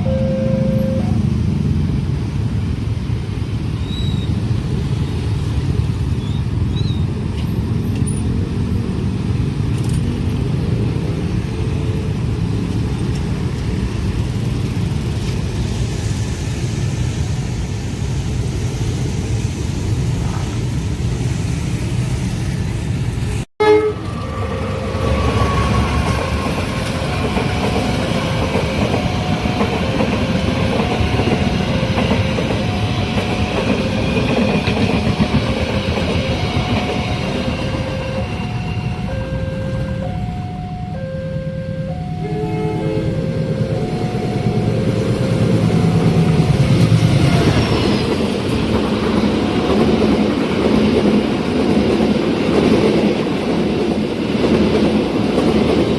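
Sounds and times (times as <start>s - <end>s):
level crossing alarm two-note signal: 0.0s - 1.2s, 36.4s - 46.7s
train rumbling past: 0.0s - 55.9s.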